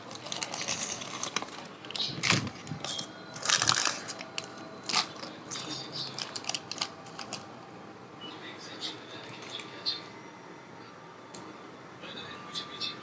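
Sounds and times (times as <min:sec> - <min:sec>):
snack packets crinkling: 0:00.0 - 0:07.5.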